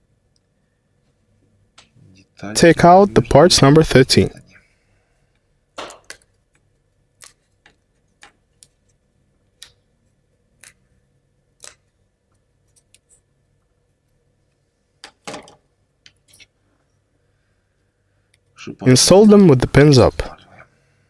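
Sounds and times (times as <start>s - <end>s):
sharp wooden clicks and snaps: 11.6s - 11.9s.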